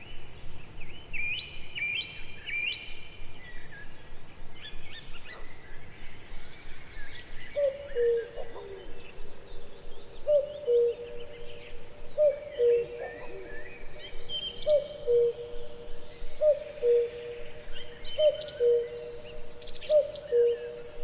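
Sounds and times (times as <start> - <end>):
birds chirping and trilling: 0.0 - 21.0.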